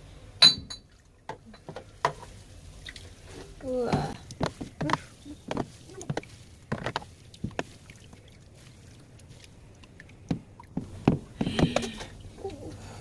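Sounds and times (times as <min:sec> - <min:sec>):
water splashing in washing machine tub: 0:00.8 - 0:13.0.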